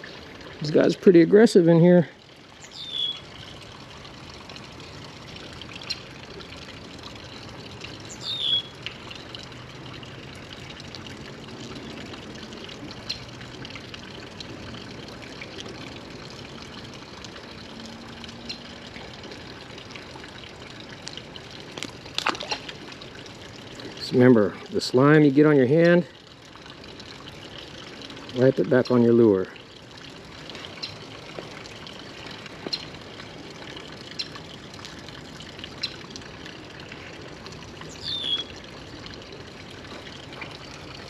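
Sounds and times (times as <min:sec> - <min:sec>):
creek water trickling: 0:00.0 - 0:41.0
bird chirp: 0:02.6 - 0:03.2, 0:08.1 - 0:08.7, 0:37.9 - 0:38.5.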